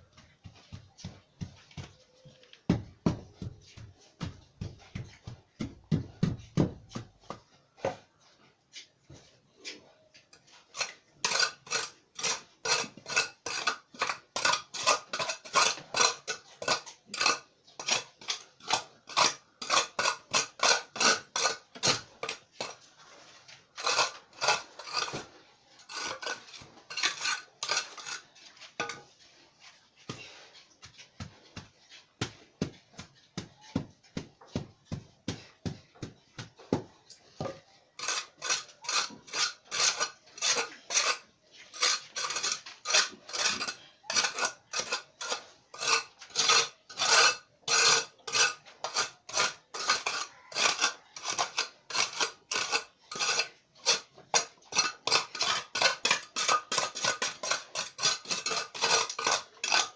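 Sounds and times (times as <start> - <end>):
metal tool scraping sand: 10.6 - 31.7, 38.0 - 59.9.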